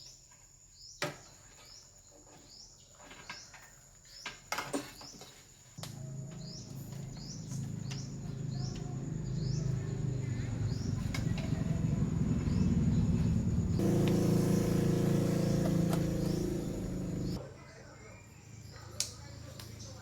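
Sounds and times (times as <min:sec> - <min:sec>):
birds chirping: 0:05.8 - 0:17.4
amplifier buzzing hum: 0:11.7 - 0:17.4.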